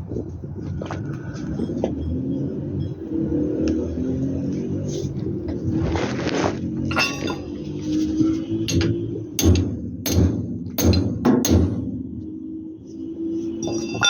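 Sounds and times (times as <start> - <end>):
hammer striking metal: 8.6 - 12.0.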